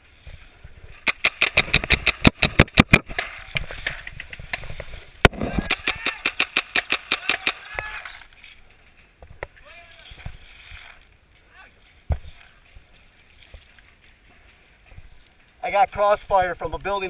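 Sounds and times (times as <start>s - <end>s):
paintball markers firing: 1.0s - 4.4s, 5.3s - 7.8s.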